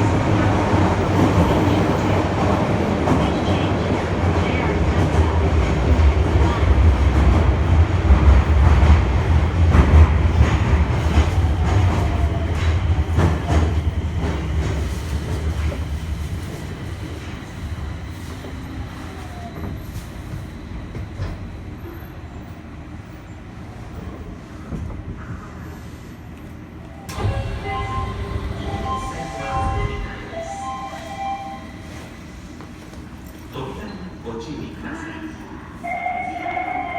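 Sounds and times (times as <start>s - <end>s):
subway train running rumble: 0.0s - 36.9s.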